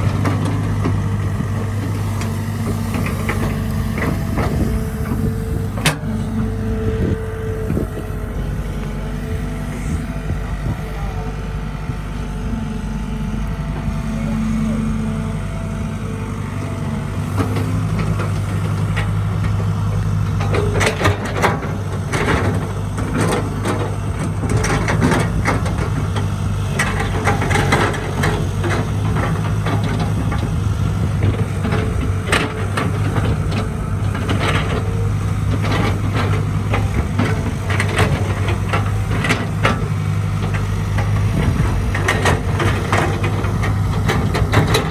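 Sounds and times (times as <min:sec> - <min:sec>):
diesel excavator engine: 0:00.0 - 0:44.9.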